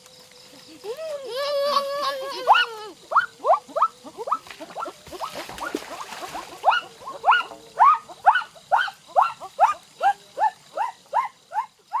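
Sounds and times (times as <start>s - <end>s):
animal yelping calls: 2.5s - 12.0s.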